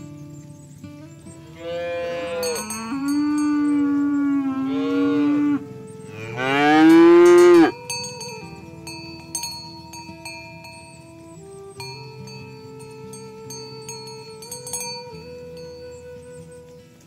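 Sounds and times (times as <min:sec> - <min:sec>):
cattle mooing: 0:01.5 - 0:07.8.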